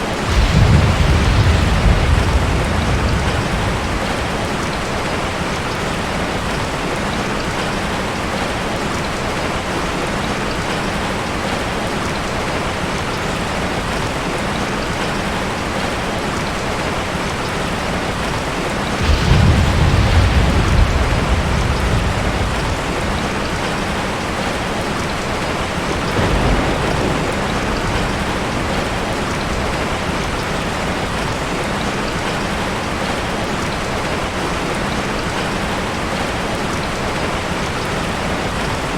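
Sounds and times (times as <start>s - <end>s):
heavy rainfall: 0.0s - 38.9s
deep rumble of thunder: 0.1s - 7.6s, 18.2s - 33.2s.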